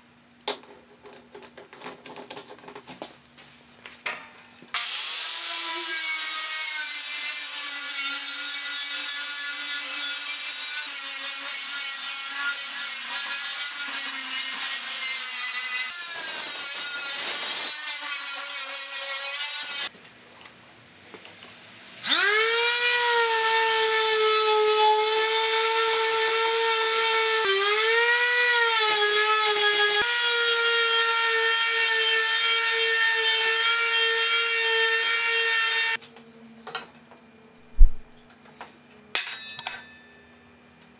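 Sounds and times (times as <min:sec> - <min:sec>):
angle grinder with wire brush: 0:04.8 - 0:19.9.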